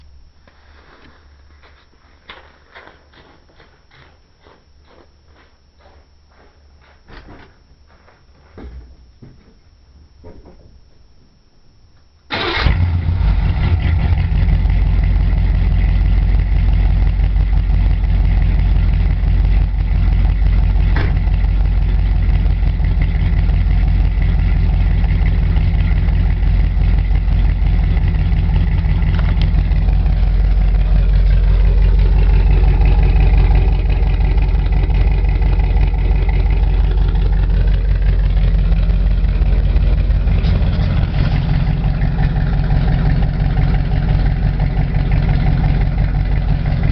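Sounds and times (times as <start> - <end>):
engine starting: 12.3 - 14.0
loud deep engine idle: 12.9 - 46.9.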